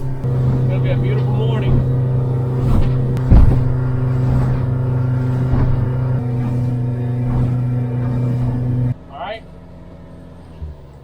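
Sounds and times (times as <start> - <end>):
faint knocks: 0.0 - 9.0
boat engine droning: 0.0 - 11.0
sharp thump: 0.2 - 9.0.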